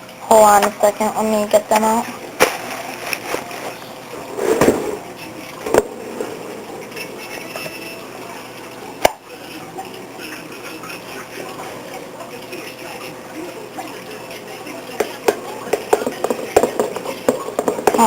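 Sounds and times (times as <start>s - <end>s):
short rustle: 2.4s - 5.1s.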